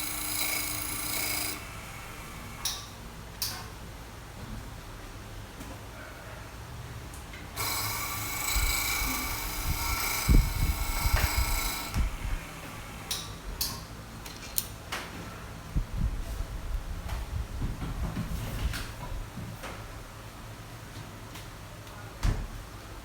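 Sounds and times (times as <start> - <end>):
sharpening machine whining: 0.0 - 2.8, 7.6 - 13.3.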